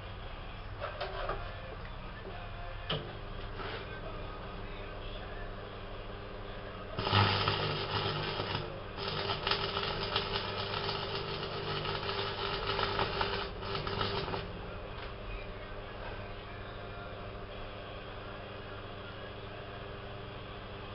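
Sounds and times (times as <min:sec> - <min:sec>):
low electrical hum: 0:00.0 - 0:20.9
welding arc crackling: 0:07.0 - 0:14.5.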